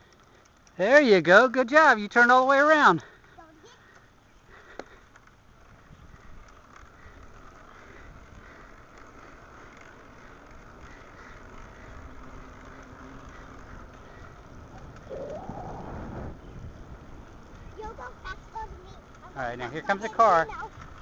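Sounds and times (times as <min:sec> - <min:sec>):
bicycle tyres rolling: 0:00.0 - 0:21.0
wind rumble on microphone: 0:14.4 - 0:17.8
brief rising call: 0:15.0 - 0:16.4.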